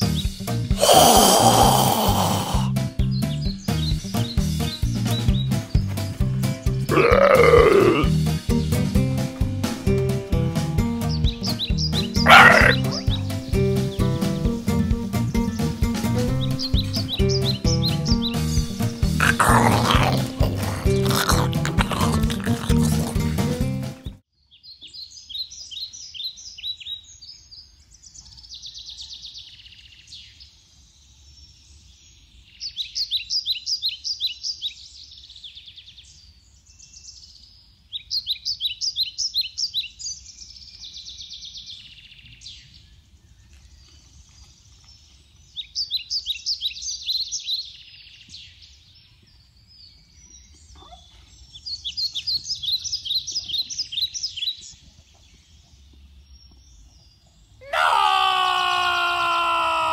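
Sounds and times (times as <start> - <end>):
faint outdoor background noise: 0.0 - 2.7, 6.9 - 8.4, 24.2 - 59.9
songbird singing: 0.0 - 8.7, 10.8 - 59.9.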